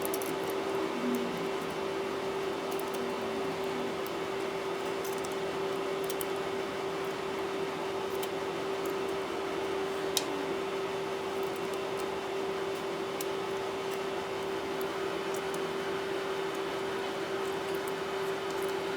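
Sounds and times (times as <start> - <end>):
small tools clicking: 0.0 - 0.6
steady low hum and hiss: 0.0 - 18.9.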